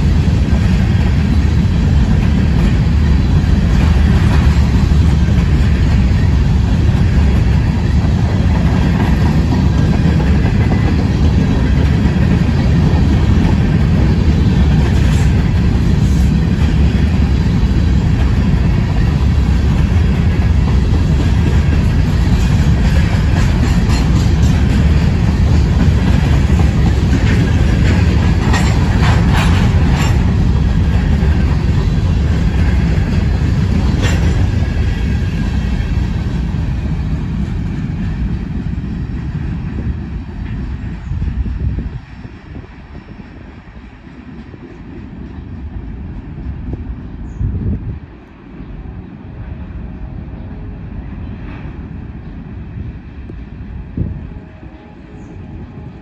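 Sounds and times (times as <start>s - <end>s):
steel wheels rumbling on rail: 0.0s - 56.0s.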